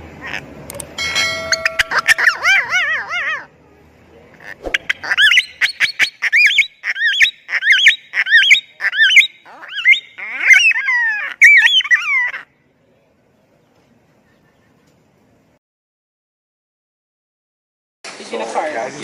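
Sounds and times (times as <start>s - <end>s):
parrot shrill chirps and squawks: 1.4s - 3.5s, 4.4s - 12.5s.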